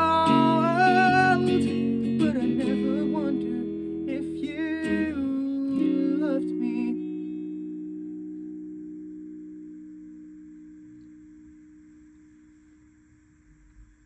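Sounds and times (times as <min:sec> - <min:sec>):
wordless sung melody: 0:00.0 - 0:11.2
acoustic guitar chords: 0:00.0 - 0:12.8.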